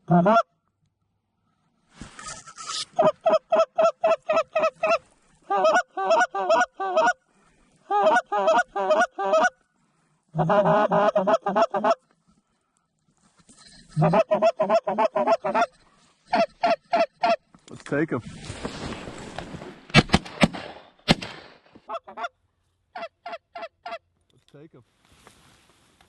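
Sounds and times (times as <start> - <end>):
duck call quacking: 3.0 - 7.2, 7.9 - 9.6, 10.4 - 12.0, 14.0 - 17.4, 21.9 - 22.3, 23.0 - 24.0.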